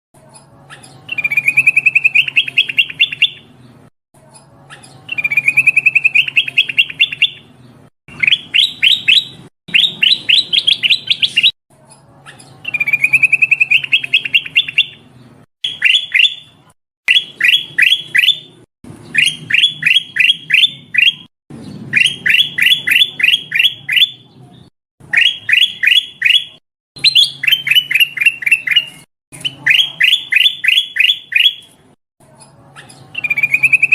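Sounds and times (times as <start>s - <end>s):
bulbul calling: 0.8s - 3.5s, 4.7s - 7.5s, 8.1s - 11.6s, 12.3s - 15.0s, 15.6s - 21.3s, 21.9s - 24.3s, 25.0s - 31.8s.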